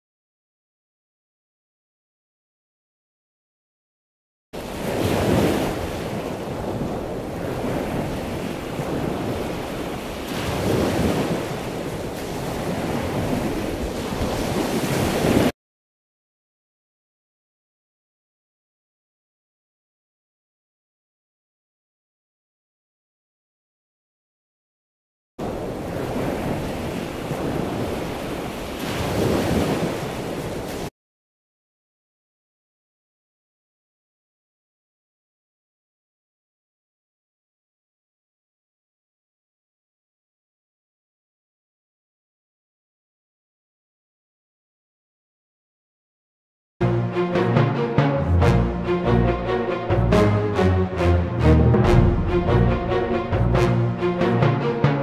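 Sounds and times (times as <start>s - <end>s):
waves washing in: 4.6s - 15.5s, 25.4s - 30.9s, 46.8s - 55.0s
water washing: 46.8s - 55.0s.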